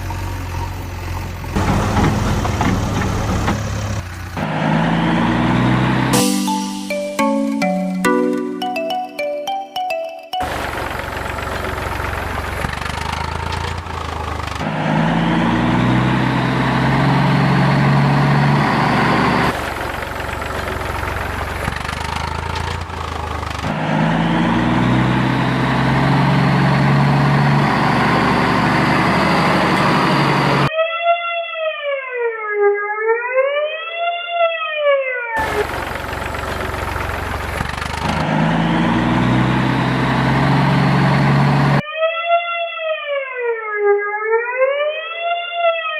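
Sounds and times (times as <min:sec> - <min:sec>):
heavy vehicle engine revving: 0:00.0 - 0:06.1, 0:10.5 - 0:30.7, 0:35.4 - 0:41.8.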